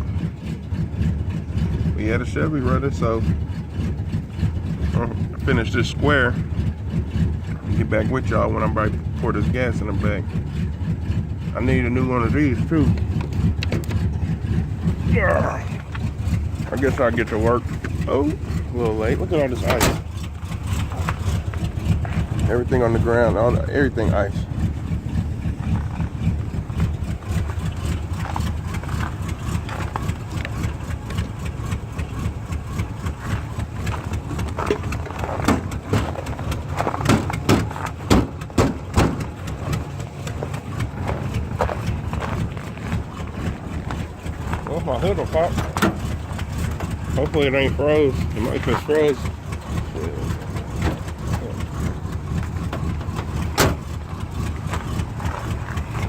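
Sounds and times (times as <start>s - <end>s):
car engine idling: 0.0s - 56.0s
footsteps on ice: 33.2s - 38.1s, 40.4s - 44.7s, 54.7s - 56.0s.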